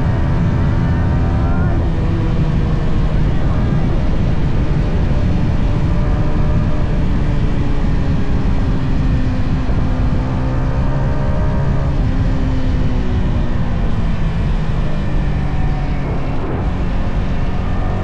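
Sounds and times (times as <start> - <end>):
motorcycle engine exhaust: 14.5 - 18.0.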